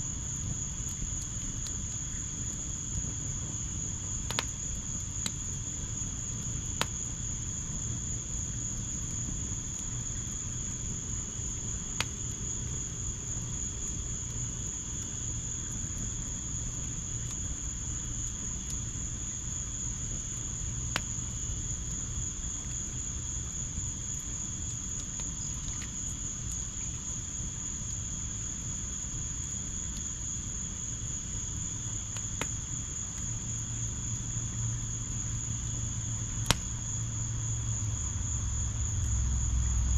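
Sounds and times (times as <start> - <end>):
fire popping: 0.0 - 37.0
crickets chirring: 0.0 - 39.9
low steady rumble: 31.6 - 39.9.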